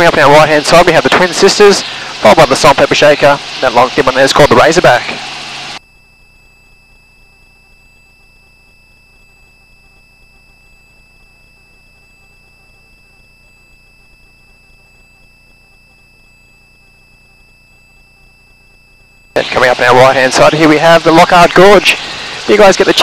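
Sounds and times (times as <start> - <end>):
low electronic hum: 0.0 - 23.0
thin high electronic tones: 5.8 - 23.0.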